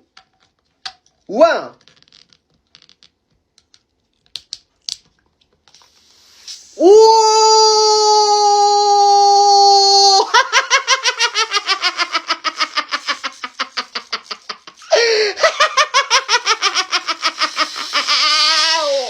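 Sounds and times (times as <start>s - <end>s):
high-pitched voice holding ooh: 6.8s - 10.3s, 18.4s - 19.0s
laughter: 10.2s - 18.8s.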